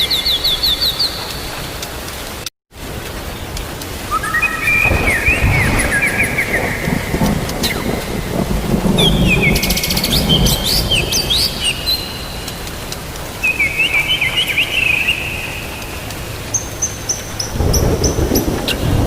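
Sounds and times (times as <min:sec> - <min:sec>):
rain and thunder rumble: 0:00.0 - 0:19.0
songbird chirping: 0:04.0 - 0:18.9.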